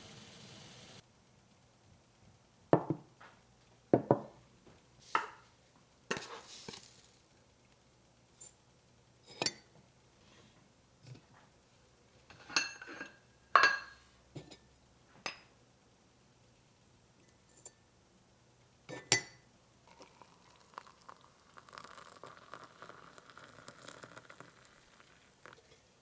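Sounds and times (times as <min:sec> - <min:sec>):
glassware and dishes clinking: 0:12.3 - 0:14.6.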